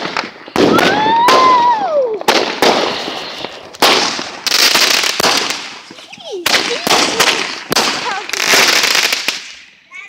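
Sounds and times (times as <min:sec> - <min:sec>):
fireworks banging and crackling: 0:00.0 - 0:09.9.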